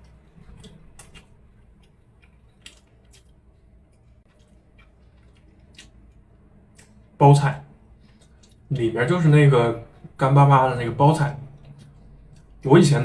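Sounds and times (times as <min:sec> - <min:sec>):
crunchy chewing: 0:00.0 - 0:07.2, 0:11.5 - 0:12.7
low steady background noise: 0:00.0 - 0:13.0.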